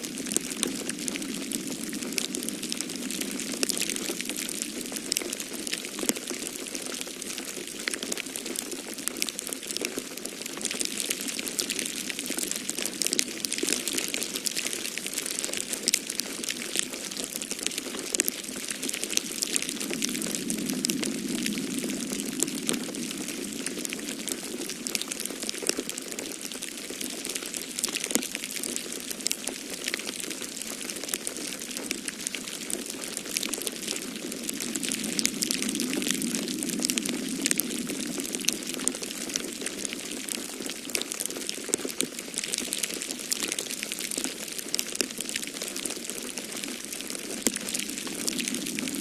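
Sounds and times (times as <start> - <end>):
wood fire crackling: 0.0 - 49.0.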